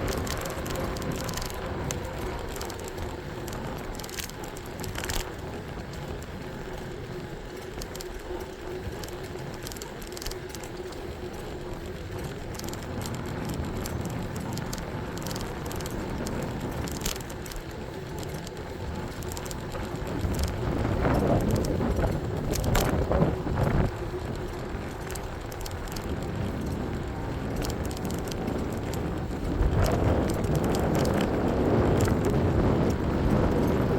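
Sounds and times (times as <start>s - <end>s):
bike rolling road noise: 0.0s - 33.9s.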